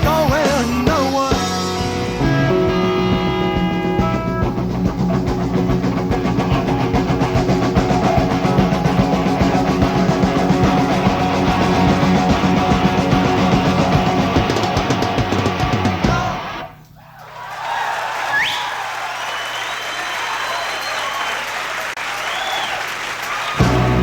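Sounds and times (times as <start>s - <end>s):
rock band playing: 0.0s - 16.8s, 23.5s - 24.0s
steady drumming: 0.0s - 17.0s.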